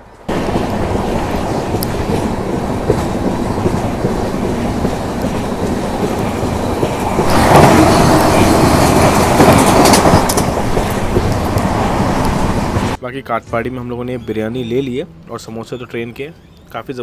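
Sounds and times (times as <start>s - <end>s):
passing train rushing roar: 0.0s - 13.0s
train wheels clattering on rails: 0.3s - 13.0s.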